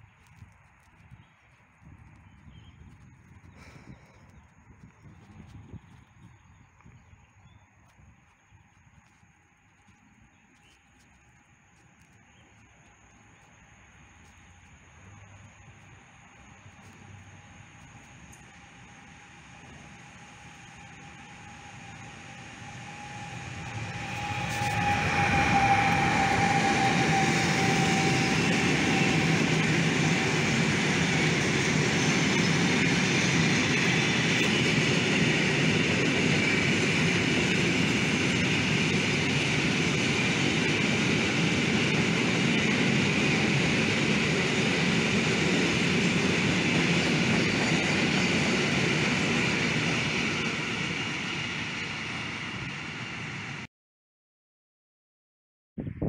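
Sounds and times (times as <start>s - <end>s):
electric locomotive whine: 0.0s - 53.7s
train wheels rolling on rails: 15.8s - 53.1s.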